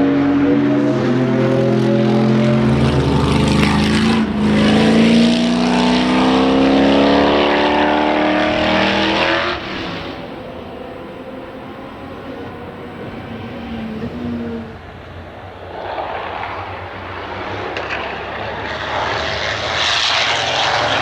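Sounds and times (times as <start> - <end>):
racing car engine accelerating: 0.0 - 21.0.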